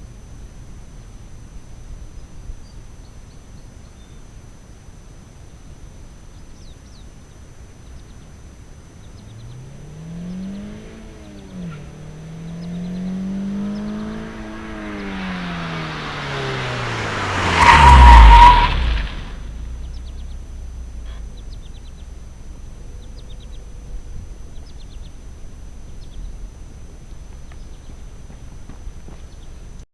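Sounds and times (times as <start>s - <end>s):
low steady rumble: 0.0s - 29.8s
small bird chirping: 6.3s - 17.1s, 19.6s - 28.2s
car exhaust accelerating: 8.2s - 29.8s.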